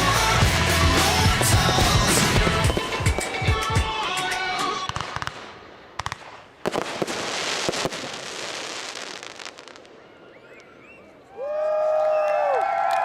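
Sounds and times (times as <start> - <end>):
music: 0.0 - 5.0
fireworks bangs: 0.0 - 10.2
firework burst: 0.6 - 9.9
firework crackling hiss: 6.2 - 9.9.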